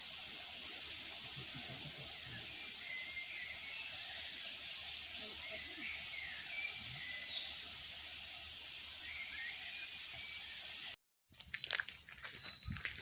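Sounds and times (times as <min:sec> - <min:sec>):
high-pitched insect drone: 0:00.0 - 0:11.0
bird chirps: 0:02.2 - 0:07.8, 0:09.0 - 0:10.9.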